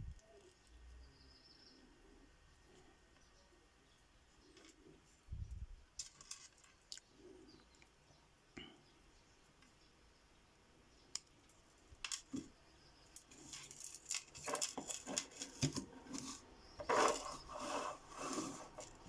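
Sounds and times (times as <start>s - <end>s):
hands handling small hard objects: 5.9s - 7.1s, 11.2s - 19.0s.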